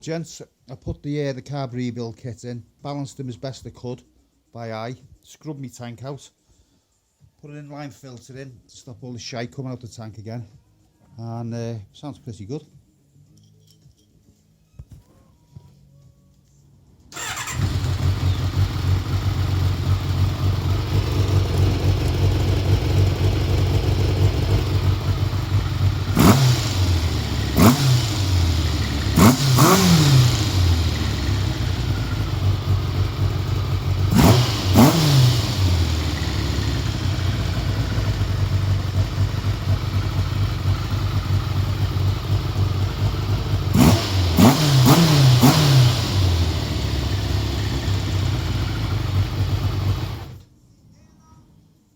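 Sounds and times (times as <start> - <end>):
engine throttle blips: 17.2 - 50.4
motorcycle engine idling: 17.2 - 50.4.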